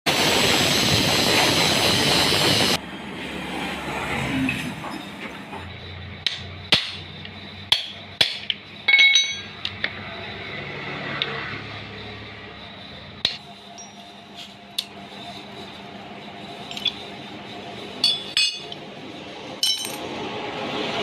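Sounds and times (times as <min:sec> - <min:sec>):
hammer striking metal: 0:06.2 - 0:09.9, 0:13.2 - 0:14.0, 0:18.0 - 0:18.8, 0:19.6 - 0:20.1
ringing metallic clinks: 0:08.8 - 0:09.8, 0:13.7 - 0:14.2, 0:18.0 - 0:18.8, 0:19.6 - 0:20.0.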